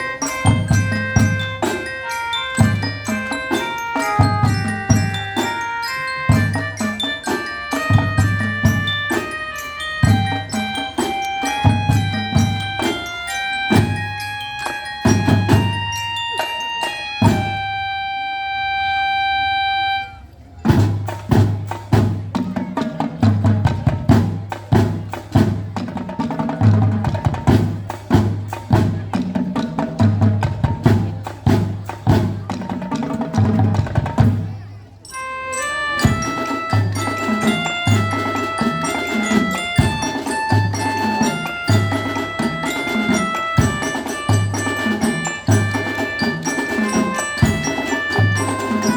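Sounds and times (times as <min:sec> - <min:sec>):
drumline playing: 0:00.0 - 0:17.8, 0:20.6 - 0:48.9
glockenspiel melody: 0:00.0 - 0:21.2, 0:34.4 - 0:48.9.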